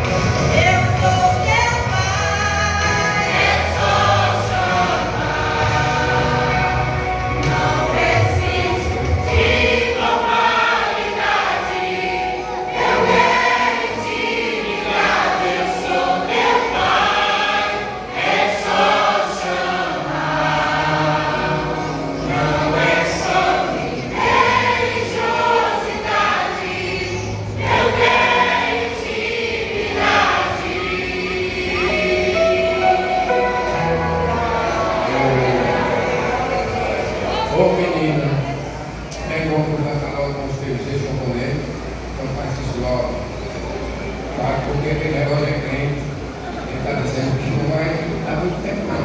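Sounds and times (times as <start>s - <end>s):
vocal group singing gospel: 0.0s - 39.0s.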